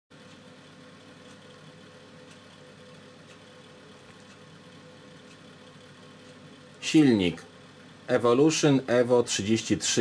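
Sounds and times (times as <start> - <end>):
soft ticking: 0.2 - 7.7.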